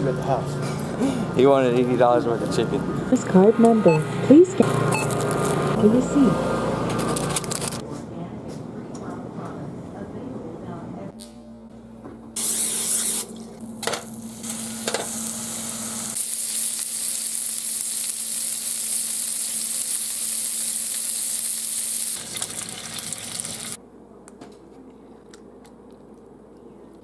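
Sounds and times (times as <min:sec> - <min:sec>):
burger patties sizzling in a pan: 0:14.1 - 0:23.8.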